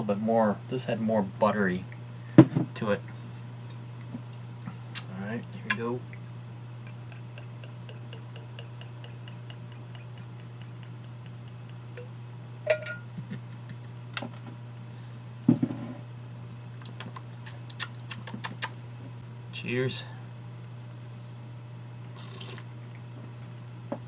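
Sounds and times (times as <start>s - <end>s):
steady low hum: 0.0s - 24.0s
bottle and glass clicking: 12.7s - 13.1s.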